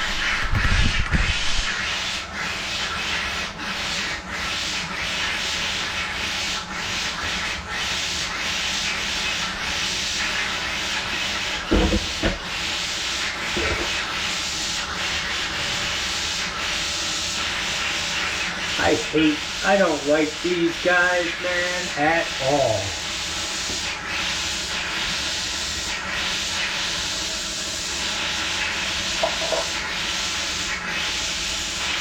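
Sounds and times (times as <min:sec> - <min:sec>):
water running from tap: 0:08.4 - 0:32.0.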